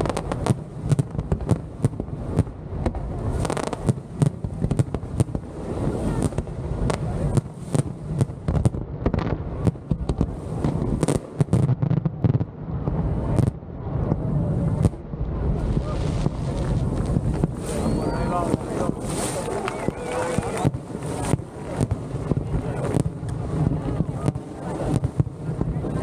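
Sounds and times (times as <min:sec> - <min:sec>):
fireworks bangs: 0:00.0 - 0:26.0
low rumble: 0:12.1 - 0:26.0.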